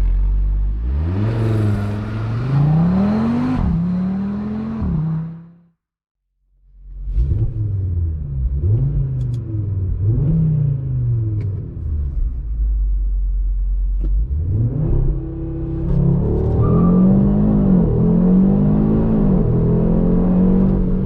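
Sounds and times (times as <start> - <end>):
car engine revving: 0.0 - 5.7, 14.0 - 21.0.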